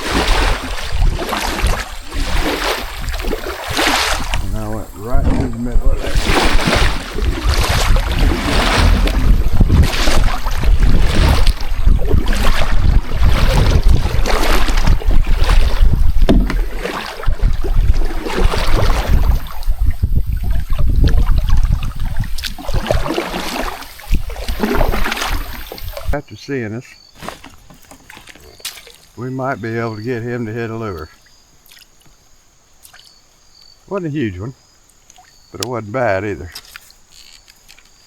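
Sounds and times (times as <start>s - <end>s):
kayak paddle strokes in water: 0.0s - 26.2s, 27.2s - 33.1s
wind rumble on microphone: 0.0s - 26.2s.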